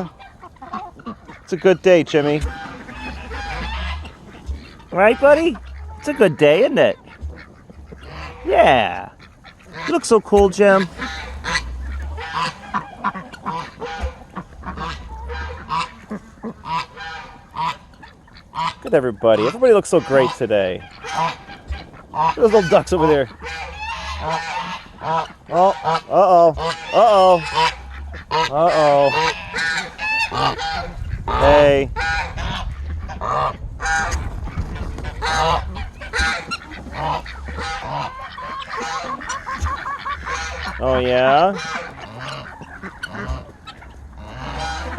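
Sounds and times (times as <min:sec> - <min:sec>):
geese honking: 0:00.0 - 0:44.9
poultry calling: 0:00.0 - 0:44.9
low rumble: 0:02.4 - 0:06.1, 0:10.4 - 0:16.0, 0:26.5 - 0:41.3.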